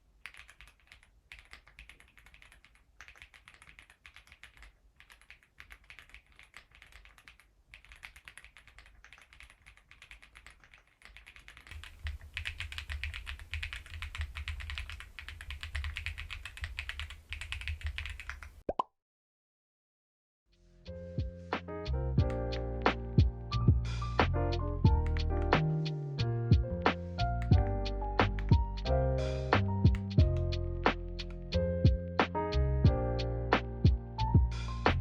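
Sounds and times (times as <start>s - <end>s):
mechanical keyboard typing: 0.2s - 18.5s, 24.9s - 25.6s, 29.6s - 30.5s.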